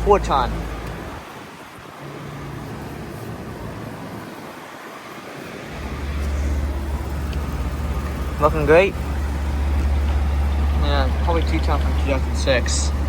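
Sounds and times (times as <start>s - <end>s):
fan airflow: 0.0s - 13.0s
low compressor hum: 5.7s - 13.0s.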